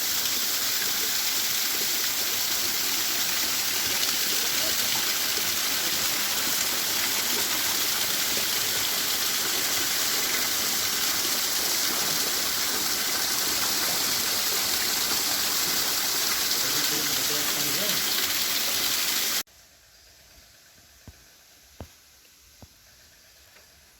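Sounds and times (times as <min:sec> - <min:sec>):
running water rushing: 0:00.0 - 0:19.4.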